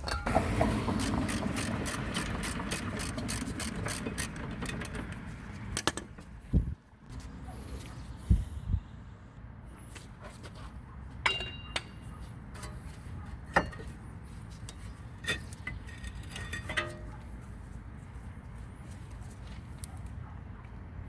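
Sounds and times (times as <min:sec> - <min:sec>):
metal parts and tools clinking: 0:00.0 - 0:06.3, 0:14.6 - 0:17.2.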